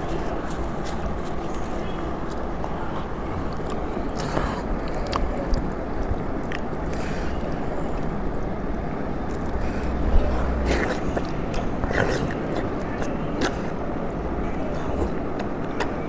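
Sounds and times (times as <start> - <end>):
chewing and slurping: 0.0 - 16.0
low rumble: 8.4 - 12.0.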